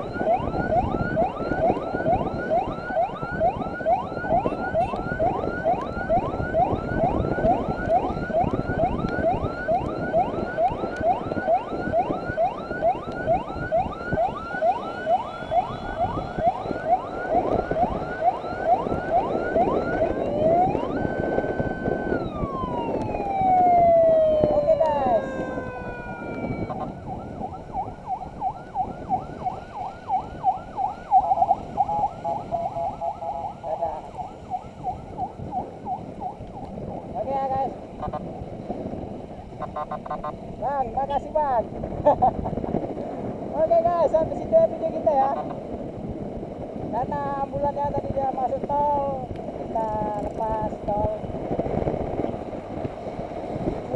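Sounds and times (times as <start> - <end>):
electronic siren yelping: 0.0 - 36.7, 39.6 - 40.4
motorcycle ride rumble: 0.0 - 53.9
wind and road noise: 0.0 - 53.9.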